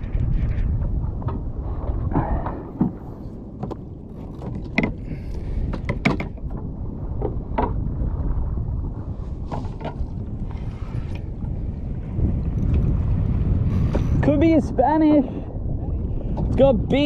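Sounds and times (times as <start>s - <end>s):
wind rumbling on microphone: 0.0s - 17.0s
sharp clicks and knocks: 5.7s - 6.4s.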